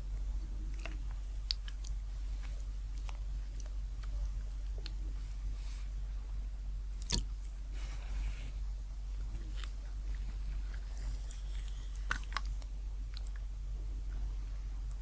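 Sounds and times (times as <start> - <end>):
chewing and biting: 9.4 - 13.5.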